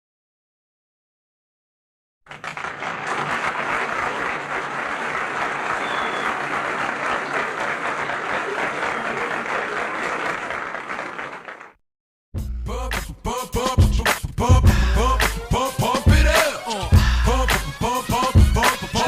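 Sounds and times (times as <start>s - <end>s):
crowd applause: 2.3s - 11.8s.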